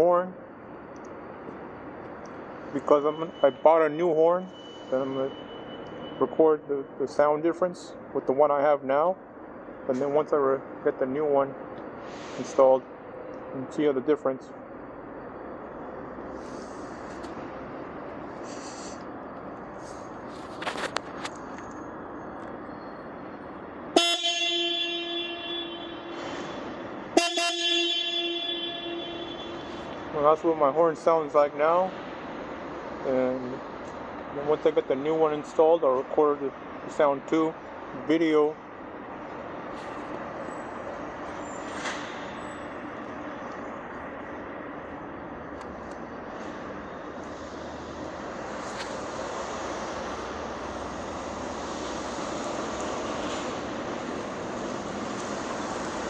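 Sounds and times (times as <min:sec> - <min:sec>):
motorcycle horn honking: 0:24.0 - 0:30.1.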